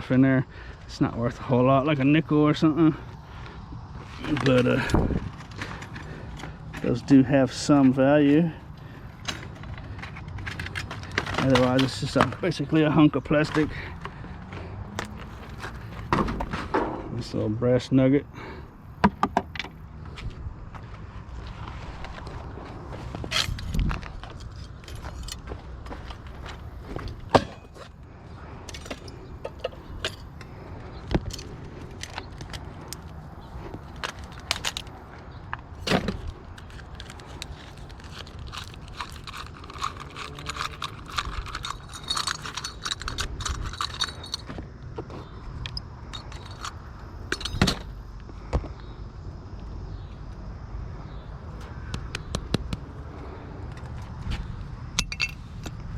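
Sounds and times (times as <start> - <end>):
metal jingling rattle: 23.2 - 25.6, 28.6 - 30.5, 31.2 - 35.1, 35.8 - 44.6, 45.7 - 47.9, 55.0 - 55.6
metal scrap clinking: 35.8 - 44.5, 46.1 - 47.9, 55.0 - 55.5.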